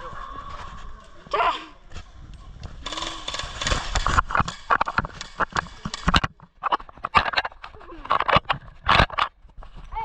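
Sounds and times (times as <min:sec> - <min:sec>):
rustling noise: 0:01.9 - 0:10.0
sharp clicks and knocks: 0:02.6 - 0:09.6.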